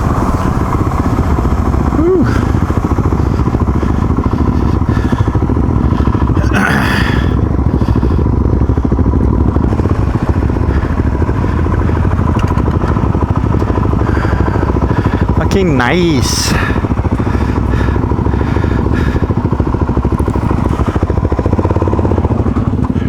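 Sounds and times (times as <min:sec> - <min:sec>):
rough burst of noise: 0:00.0 - 0:07.2
motorcycle engine running: 0:00.0 - 0:23.0.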